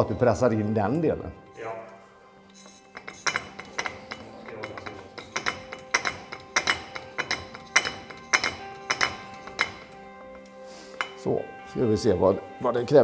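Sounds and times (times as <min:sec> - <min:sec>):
background music: 0:00.0 - 0:13.0
metallic clinks and clanks: 0:02.5 - 0:12.2.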